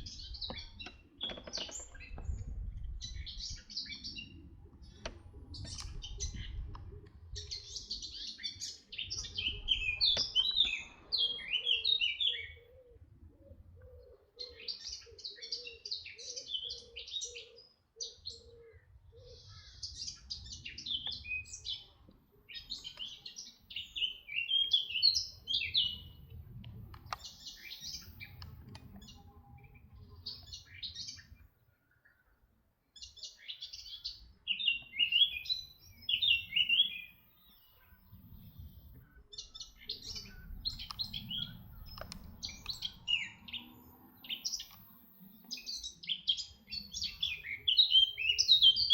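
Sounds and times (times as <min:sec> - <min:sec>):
songbird singing: 0:00.0 - 0:48.9
faint low rumble: 0:37.6 - 0:45.3.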